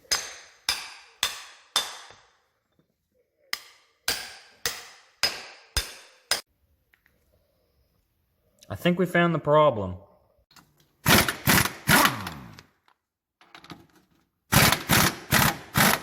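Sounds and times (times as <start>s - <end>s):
hammer striking metal: 0.0s - 2.4s, 3.5s - 6.5s.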